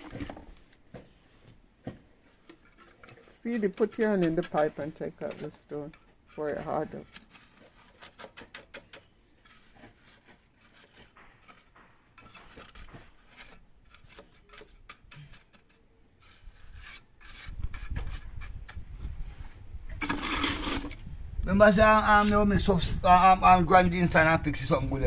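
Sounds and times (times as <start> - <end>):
scraping on pipework: 1.0 - 21.0.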